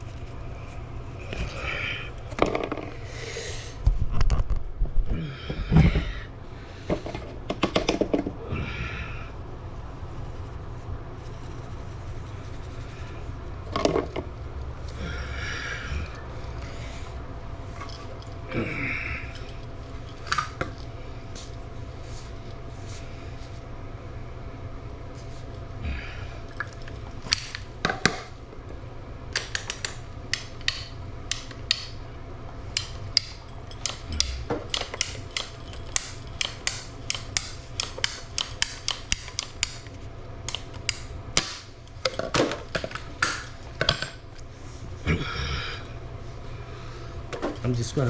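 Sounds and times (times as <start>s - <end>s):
steady low hum: 0.0s - 48.0s
pipes knocking and clattering: 6.9s - 8.4s, 29.4s - 32.0s, 32.8s - 44.2s.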